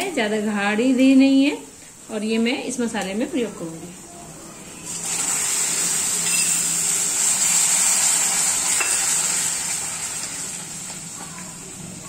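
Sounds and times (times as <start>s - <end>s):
yogurt sizzling in hot pan: 4.9s - 12.0s.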